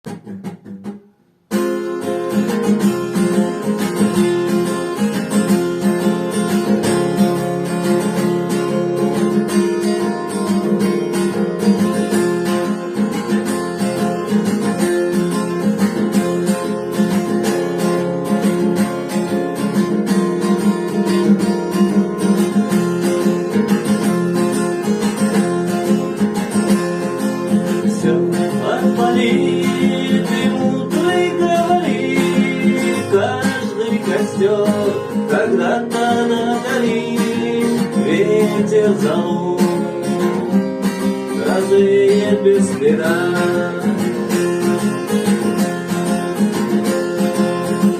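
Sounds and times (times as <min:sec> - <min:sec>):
acoustic guitar strumming: 0:00.0 - 0:47.9
person singing: 0:27.6 - 0:40.5, 0:41.2 - 0:44.4.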